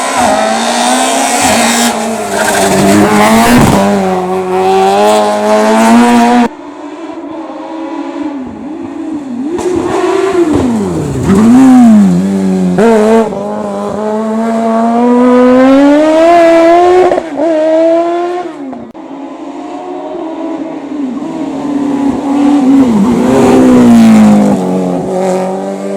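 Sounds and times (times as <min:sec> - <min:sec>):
race car engine revving: 0:00.0 - 0:25.9.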